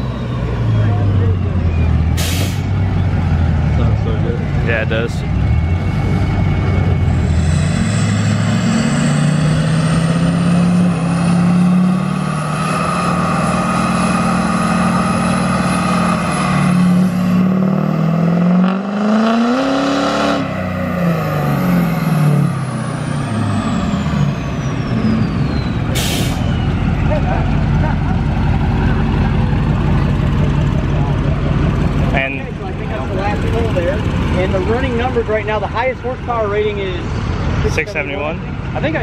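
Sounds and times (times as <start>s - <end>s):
diesel truck engine revving: 0.0s - 39.0s
high turbo whistle: 22.9s - 26.9s.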